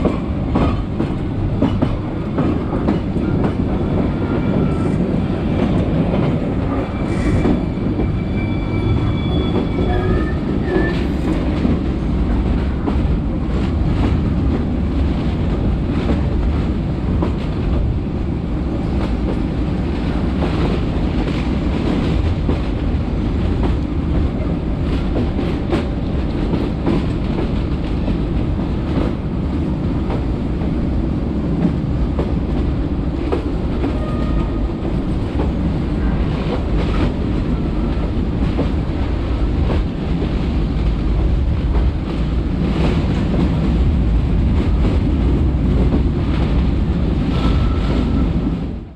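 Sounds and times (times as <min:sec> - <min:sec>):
train rumbling: 0:00.0 - 0:48.9
high squeals: 0:06.7 - 0:11.0.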